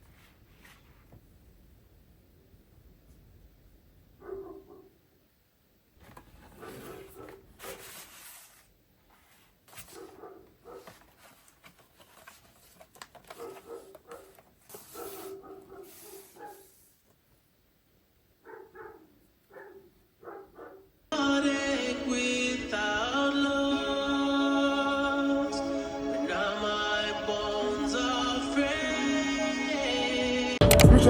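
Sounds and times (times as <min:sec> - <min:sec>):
dog barking: 0:04.2 - 0:05.0, 0:06.5 - 0:07.8, 0:09.9 - 0:11.0, 0:13.3 - 0:16.8, 0:18.4 - 0:21.0.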